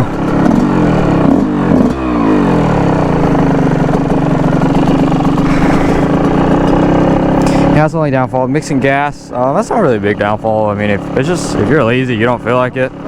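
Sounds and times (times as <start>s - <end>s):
dirt bike engine revving and idling: 0.0s - 13.0s.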